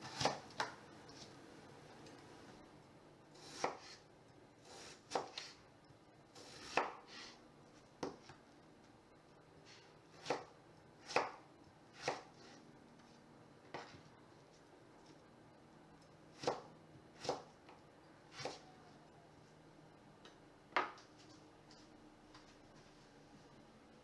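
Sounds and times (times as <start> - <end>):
knife chopping vegetables on board: 0.0 - 1.3, 3.4 - 4.0, 4.6 - 5.6, 6.4 - 7.4, 8.0 - 8.4, 10.1 - 12.6, 13.7 - 14.0, 16.3 - 18.6.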